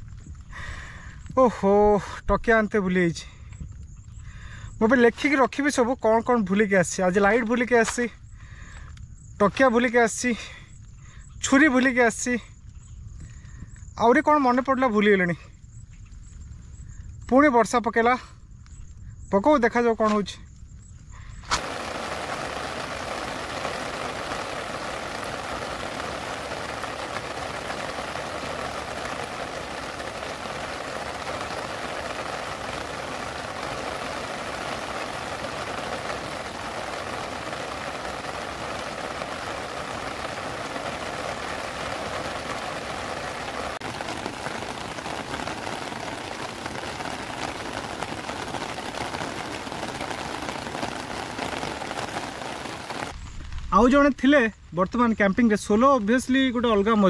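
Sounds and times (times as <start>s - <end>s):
heavy rain falling: 21.4s - 53.7s.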